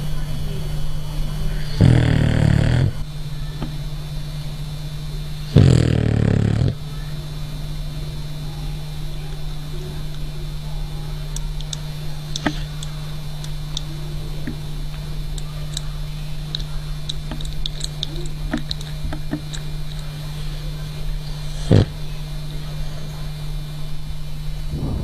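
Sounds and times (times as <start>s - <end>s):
steady low hum: 0.0s - 25.0s
dog snoring: 1.6s - 3.0s, 5.5s - 6.8s, 21.3s - 22.1s.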